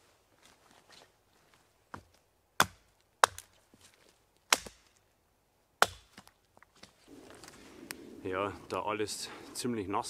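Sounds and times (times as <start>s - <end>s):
axe chopping wet wood: 2.6s - 3.5s, 4.5s - 5.0s, 5.8s - 6.3s.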